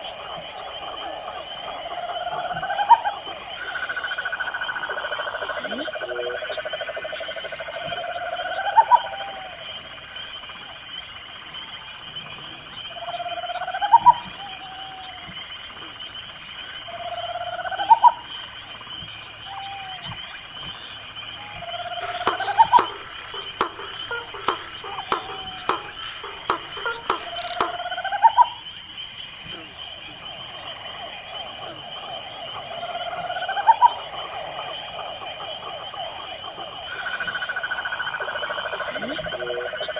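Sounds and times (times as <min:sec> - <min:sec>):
crickets chirping: 0:00.0 - 0:39.9
rapid clicks: 0:22.0 - 0:27.8.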